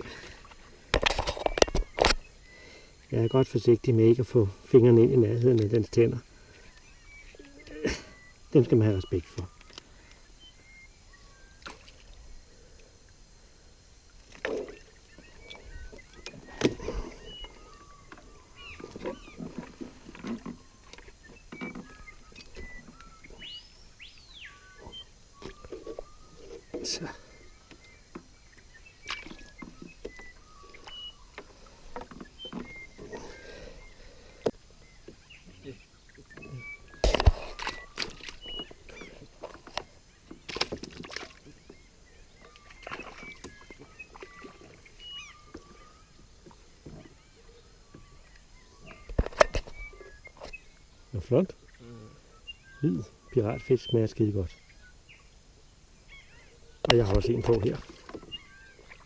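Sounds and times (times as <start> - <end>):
high whistled bird calls: 14.7 - 19.7, 20.4 - 40.2, 41.4 - 55.3, 56.0 - 59.0.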